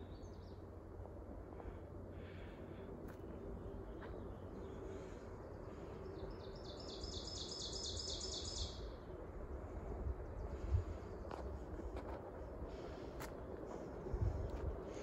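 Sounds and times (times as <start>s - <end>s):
low microphone rumble: 9.1s - 15.0s.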